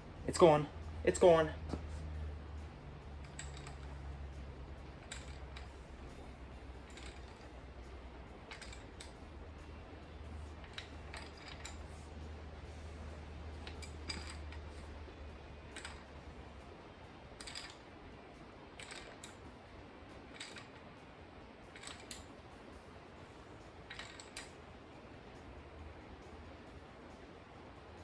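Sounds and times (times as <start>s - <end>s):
low hum: 0.0s - 28.0s
wrench metallic clicks: 3.2s - 4.1s, 4.9s - 6.2s, 6.8s - 7.6s, 8.5s - 9.2s, 10.6s - 12.0s, 13.5s - 15.0s, 15.6s - 16.2s, 17.4s - 17.9s, 18.8s - 19.4s, 20.2s - 20.8s, 21.7s - 22.3s, 23.8s - 24.6s.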